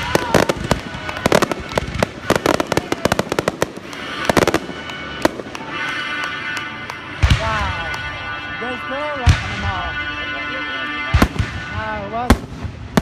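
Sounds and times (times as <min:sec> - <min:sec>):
fireworks bangs and crackles: 0:00.0 - 0:13.0
music soundtrack: 0:00.0 - 0:13.0.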